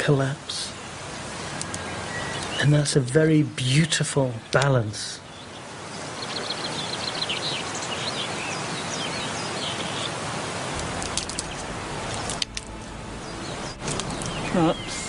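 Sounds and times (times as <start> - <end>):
small birds chirping: 0.5 - 15.0
steady rushing noise: 10.3 - 15.0.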